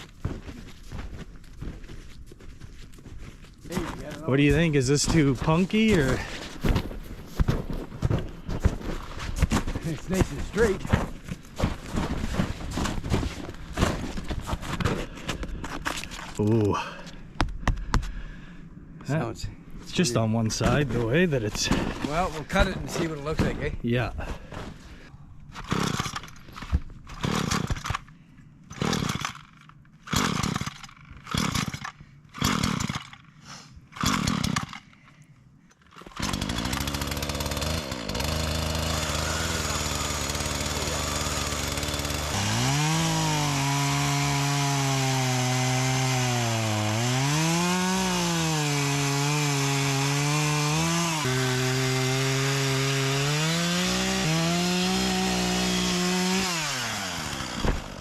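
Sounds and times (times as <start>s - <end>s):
chainsaw cutting tree trunk: 4.2s - 6.4s, 25.6s - 26.3s, 27.1s - 28.0s, 28.7s - 33.2s, 34.0s - 34.9s, 36.0s - 58.0s.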